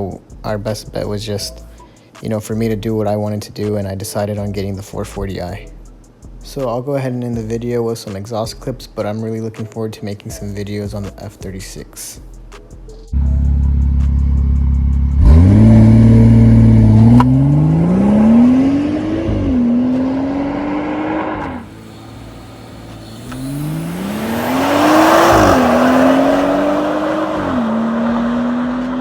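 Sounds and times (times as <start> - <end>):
car engine revving and idling: 13.1 - 29.0
exhaust rush: 13.2 - 29.0.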